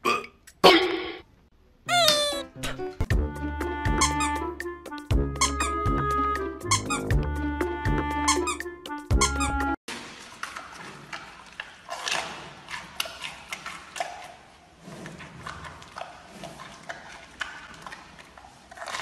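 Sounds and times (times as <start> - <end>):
panda chewing bamboo: 10.5 - 19.0.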